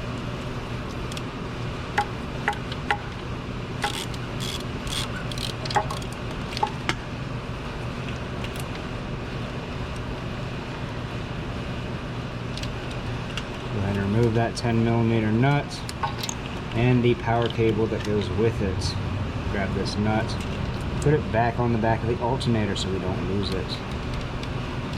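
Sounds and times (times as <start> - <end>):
steady low hum: 0.0 - 24.9
wrench clicking on metal: 3.8 - 6.7.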